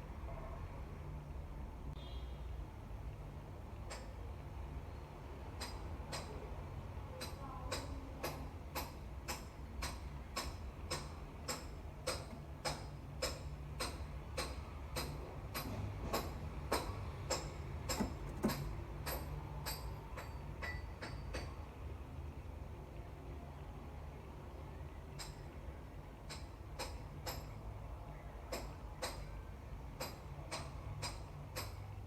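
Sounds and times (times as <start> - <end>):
sharp regular clicks: 5.4 - 21.5, 30.0 - 32.0.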